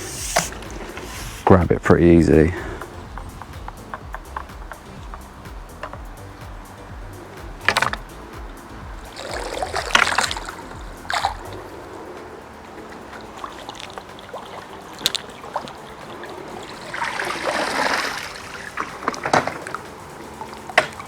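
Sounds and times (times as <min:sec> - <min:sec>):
water pouring off cleaner: 0:00.0 - 0:03.2, 0:13.0 - 0:21.0
water splashing: 0:00.0 - 0:21.0.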